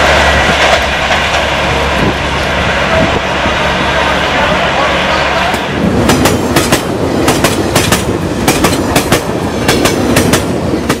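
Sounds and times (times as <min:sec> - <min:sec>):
steady train rumble: 0:00.0 - 0:11.0
train wheels clattering over joints: 0:06.1 - 0:11.0.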